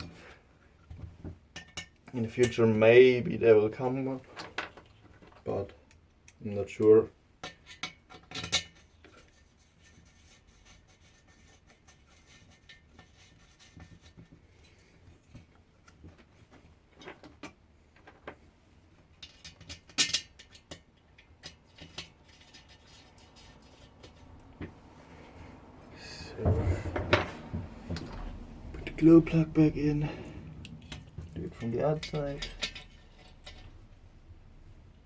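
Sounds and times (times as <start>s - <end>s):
metal tools clinking: 28.0s - 33.8s.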